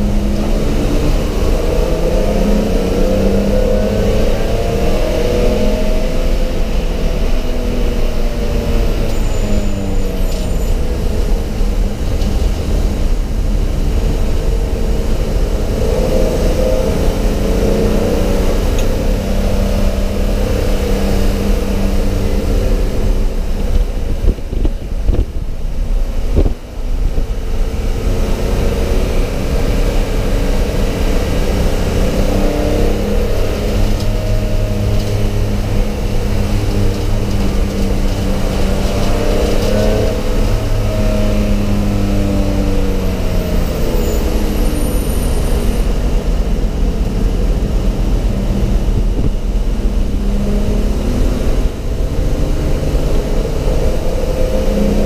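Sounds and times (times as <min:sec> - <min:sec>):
race car engine under load: 0:00.0 - 0:55.0.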